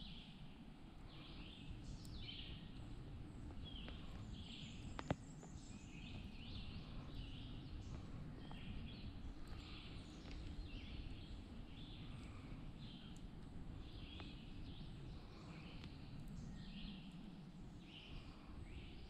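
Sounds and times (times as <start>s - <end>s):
low steady rumble: 0.0s - 19.0s
small birds chirping: 0.0s - 19.0s.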